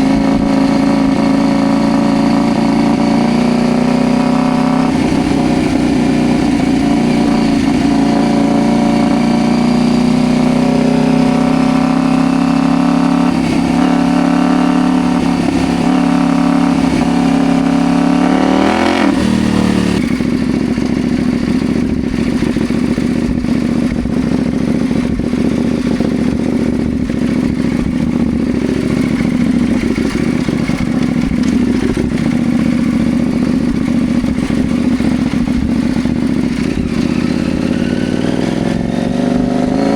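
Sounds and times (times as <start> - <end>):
motorcycle engine running: 0.0 - 39.9
rattling clatter: 27.1 - 37.4.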